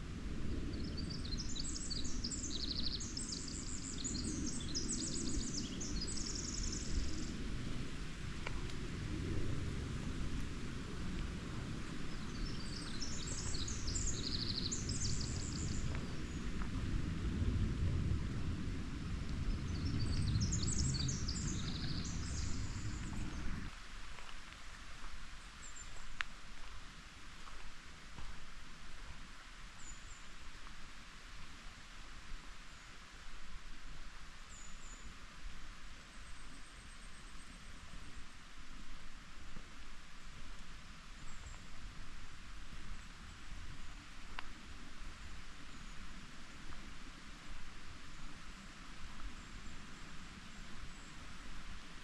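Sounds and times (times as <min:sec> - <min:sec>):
creek water rushing: 0:00.0 - 0:52.0
songbird twittering song: 0:00.5 - 0:07.8, 0:12.0 - 0:16.8, 0:19.3 - 0:23.7, 0:25.4 - 0:26.3, 0:29.7 - 0:30.4, 0:34.4 - 0:35.2, 0:41.1 - 0:41.8, 0:45.1 - 0:46.1
bird chirping: 0:00.7 - 0:07.4, 0:12.1 - 0:16.6, 0:19.5 - 0:23.7
low rumble: 0:03.6 - 0:23.8.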